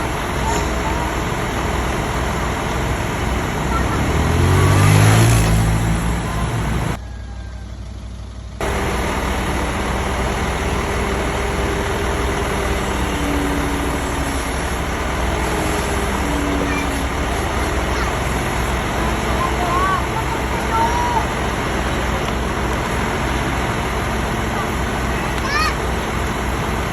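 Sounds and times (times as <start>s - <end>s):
heavy vehicle engine running: 0.0s - 26.9s
low hum: 7.8s - 26.9s.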